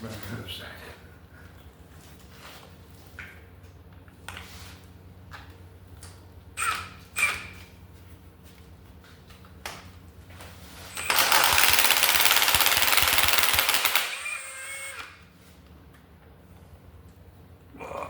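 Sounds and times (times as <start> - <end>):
air impact wrench rattling: 10.8 - 15.2.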